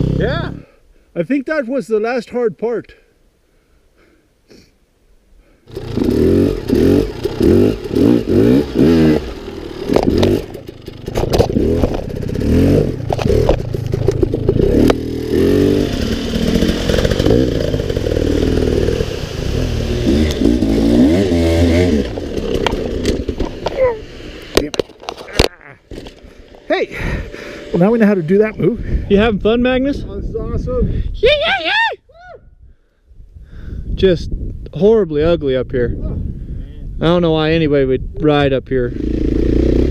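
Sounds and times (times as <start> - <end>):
dirt bike engine revving: 0.0 - 0.6, 5.7 - 29.1, 38.9 - 39.9.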